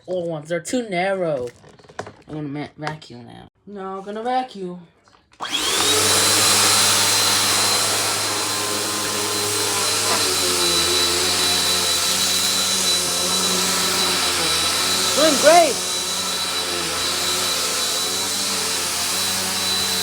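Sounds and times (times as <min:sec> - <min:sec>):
vacuum cleaner running: 0:05.4 - 0:20.0.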